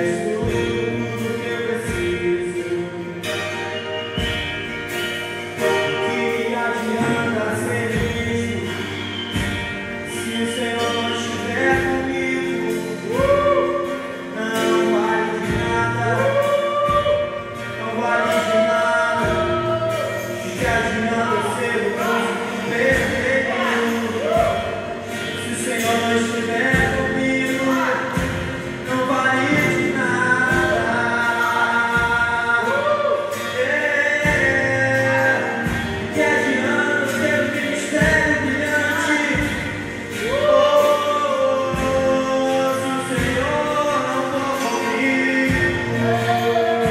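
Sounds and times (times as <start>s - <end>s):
gospel singing: 0.0s - 5.0s, 5.6s - 46.9s
instrumental accompaniment: 0.0s - 46.9s
low bass notes: 5.6s - 10.8s.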